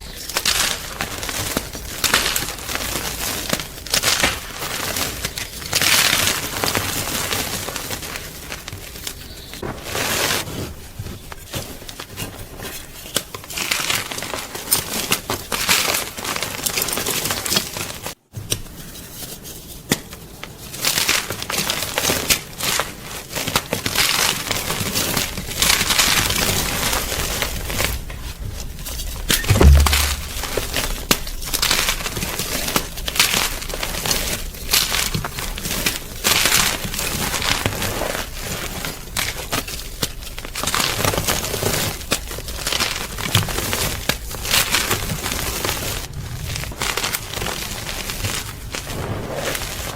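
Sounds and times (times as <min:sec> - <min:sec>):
loud low thump: 0:29.5 - 0:30.8
chalk crunching and crumbling: 0:31.7 - 0:49.9.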